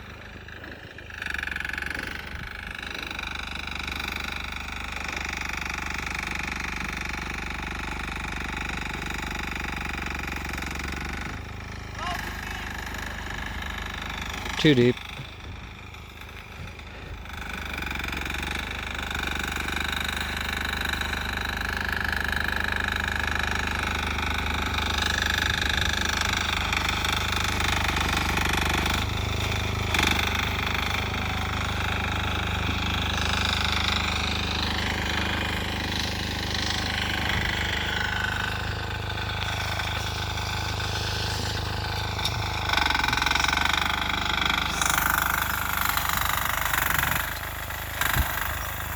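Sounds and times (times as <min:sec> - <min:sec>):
diesel engine knocking steadily: 0:00.0 - 0:48.9.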